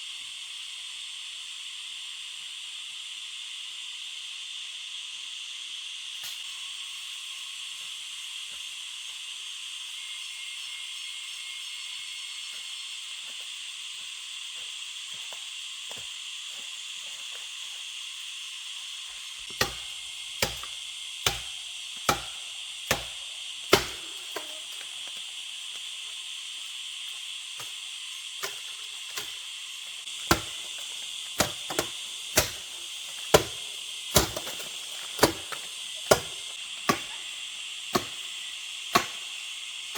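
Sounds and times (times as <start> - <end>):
high-pitched insect drone: 0.0 - 19.5
sharp chopping strikes: 19.5 - 25.2, 28.4 - 29.4, 30.0 - 37.3, 37.9 - 39.4.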